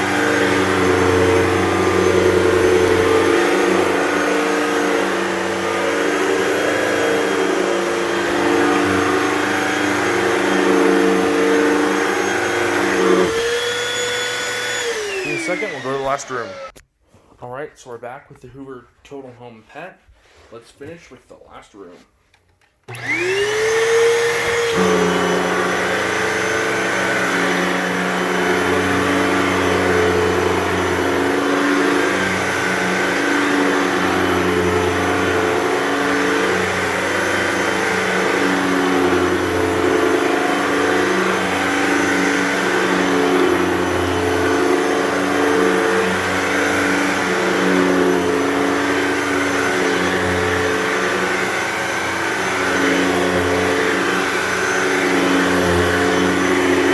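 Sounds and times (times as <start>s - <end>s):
vacuum cleaner running on carpet: 0.0s - 16.7s, 22.9s - 56.9s.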